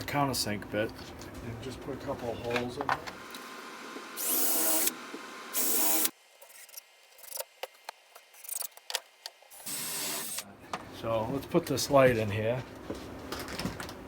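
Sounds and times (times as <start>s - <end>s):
power drill whining: 3.2s - 6.2s, 9.6s - 10.4s.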